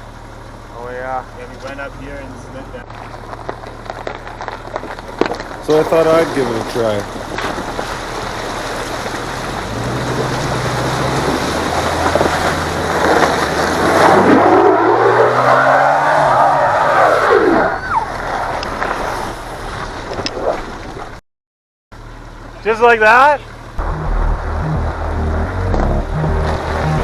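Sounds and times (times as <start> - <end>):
engine revving: 5.6 - 7.4, 8.6 - 17.8, 23.8 - 27.0.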